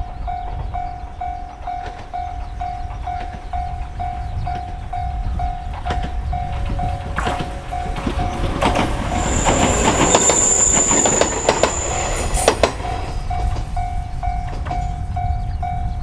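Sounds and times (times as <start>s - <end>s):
electric train passing: 0.0s - 16.0s
wheels clicking over rail joints: 0.0s - 16.0s
high wheel squeal: 6.4s - 15.6s.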